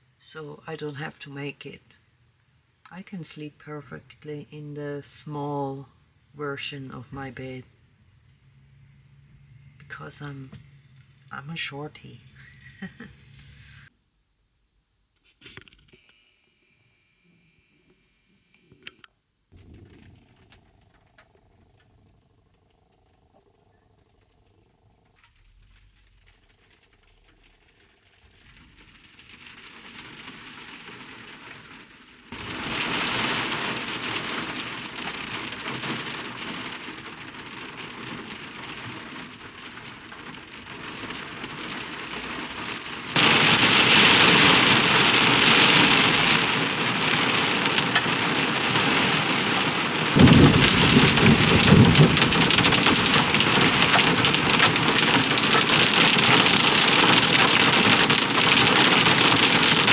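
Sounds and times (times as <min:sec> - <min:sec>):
heavy rain: 0:08.5 - 0:13.9, 0:19.6 - 0:59.9
thunder rumble: 0:19.5 - 0:59.9.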